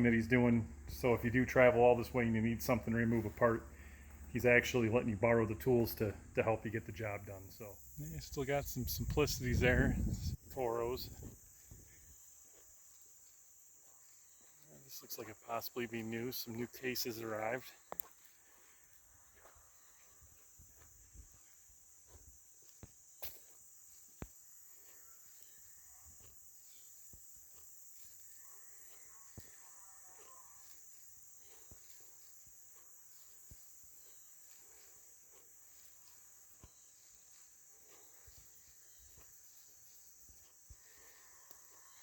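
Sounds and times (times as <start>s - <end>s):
crickets chirring: 0.0s - 42.0s
soft footsteps: 17.8s - 42.0s.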